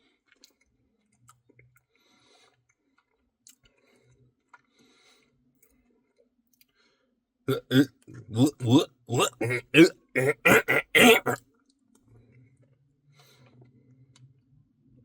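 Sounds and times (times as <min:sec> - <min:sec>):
loud vocal noise: 0:07.5 - 0:11.4
mouth sounds of eating: 0:07.5 - 0:11.4.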